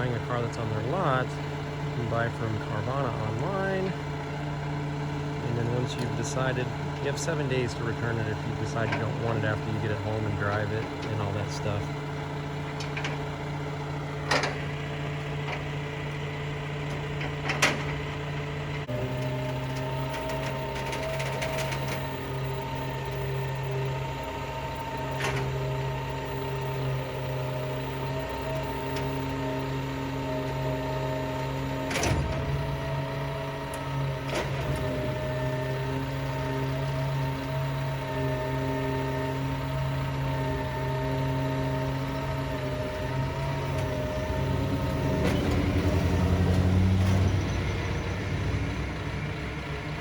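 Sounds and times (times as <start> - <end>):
vehicle engine running: 0.0 - 50.0
sharp clicks and knocks: 12.7 - 13.3, 14.2 - 14.7.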